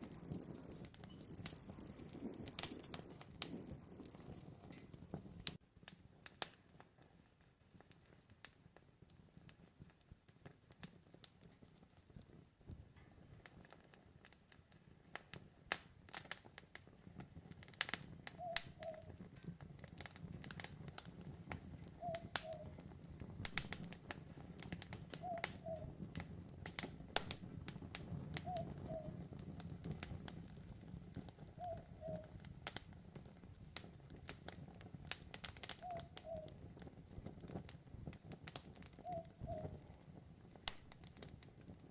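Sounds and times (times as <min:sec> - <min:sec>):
owl hooting: 0:00.0 - 0:05.2, 0:25.2 - 0:25.9, 0:28.4 - 0:29.1, 0:31.6 - 0:32.3, 0:35.8 - 0:36.5, 0:39.0 - 0:39.7
campfire crackling and popping: 0:00.0 - 0:41.9.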